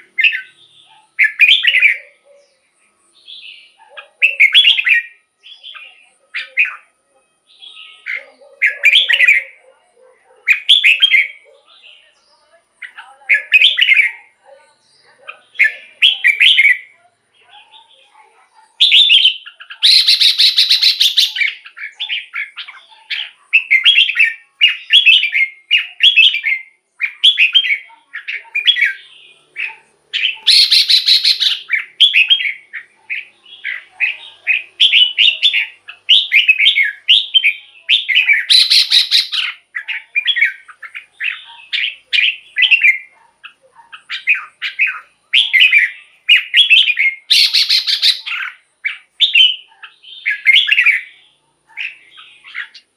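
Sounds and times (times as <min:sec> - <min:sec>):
bird singing whistled phrases: 0:03.2 - 0:06.9, 0:15.6 - 0:16.9, 0:18.8 - 0:29.0, 0:30.2 - 0:43.1, 0:44.0 - 0:51.1
harsh buzzy bird call: 0:18.8 - 0:22.8, 0:28.2 - 0:43.1, 0:44.0 - 0:49.6.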